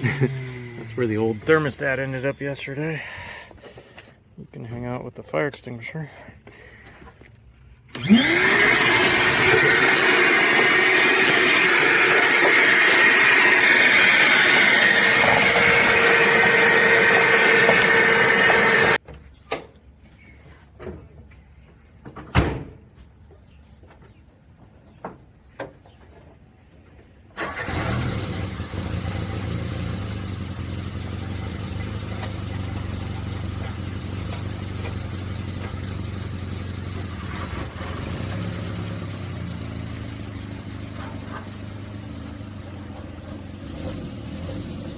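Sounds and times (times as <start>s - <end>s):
vacuum cleaner motor running: 8.0s - 19.0s
car engine idling: 27.4s - 43.6s.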